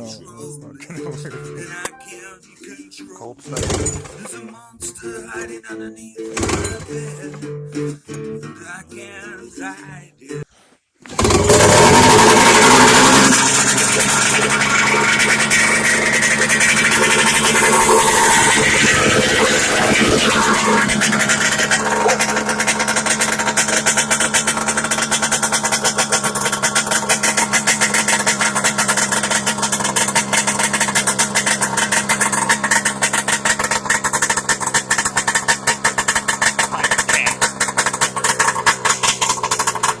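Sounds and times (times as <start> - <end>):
snowmobile engine idling: 11.1 - 40.0.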